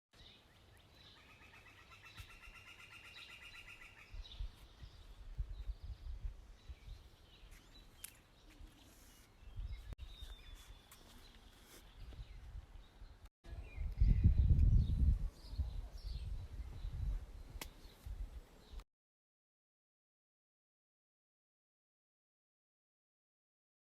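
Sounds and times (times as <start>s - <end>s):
low rumbles on microphone: 13.5s - 18.4s.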